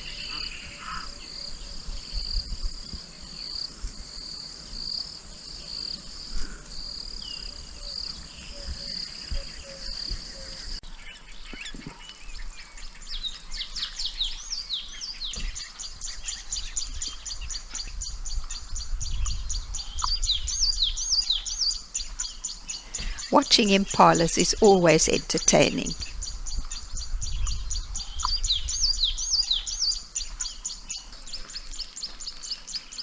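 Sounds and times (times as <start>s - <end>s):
insects trilling: 0.0s - 10.9s
birds chirping: 0.0s - 33.0s.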